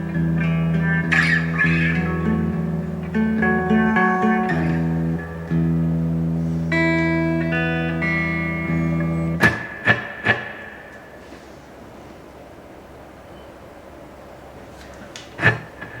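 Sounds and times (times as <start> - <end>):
muted guitar strums: 0.0 - 11.6
electric guitar with reverb: 0.0 - 13.0, 14.7 - 16.0.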